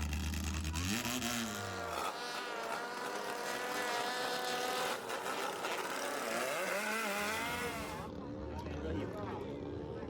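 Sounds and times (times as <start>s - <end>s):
boat engine running: 0.0s - 8.0s.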